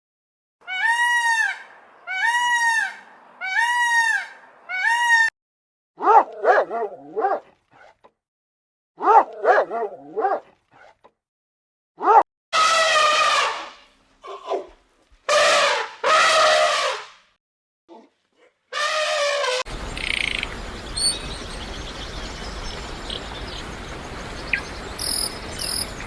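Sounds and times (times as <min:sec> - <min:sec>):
animal drawn-out cries: 0:00.6 - 0:05.3.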